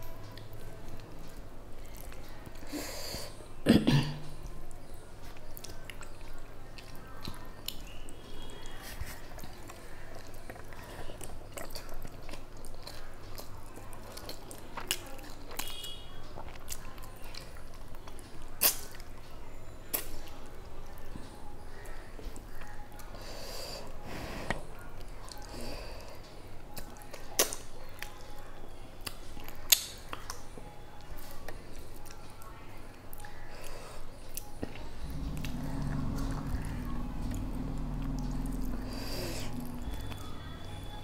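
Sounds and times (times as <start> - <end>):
person chewing food: 5.2 - 19.2, 33.1 - 41.0.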